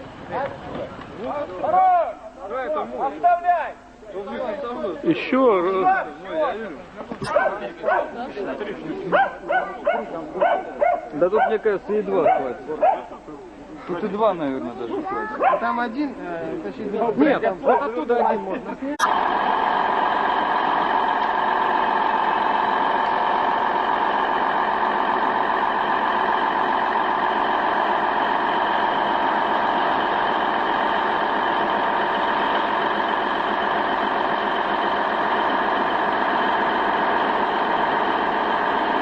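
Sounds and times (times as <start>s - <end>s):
heavy vehicle engine droning: 19.0s - 39.0s.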